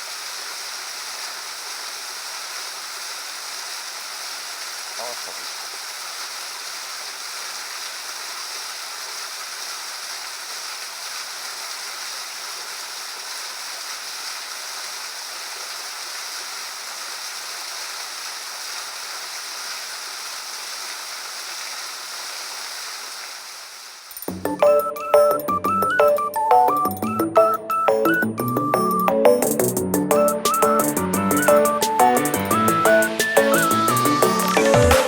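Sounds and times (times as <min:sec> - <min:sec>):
waterfall pouring: 0:00.0 - 0:27.9
music: 0:24.2 - 0:35.0.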